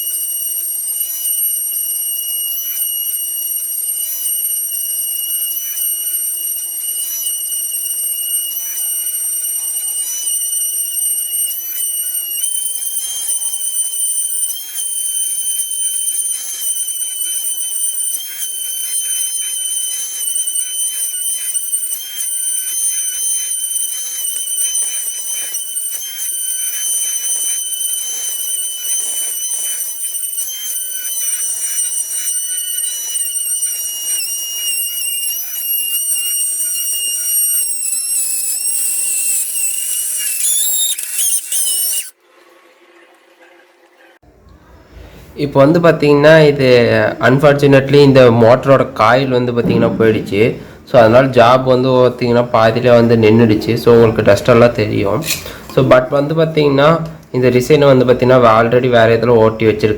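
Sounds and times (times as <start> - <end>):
high-pitched router whine: 0.0 - 42.2
router bit crackling in wood: 0.0 - 42.2.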